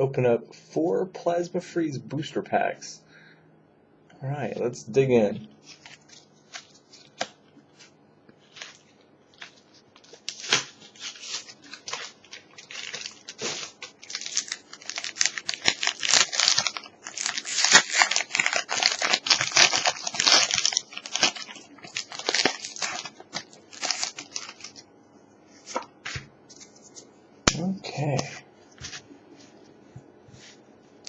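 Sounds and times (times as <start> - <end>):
foil wrapper crinkling: 5.6 - 24.8.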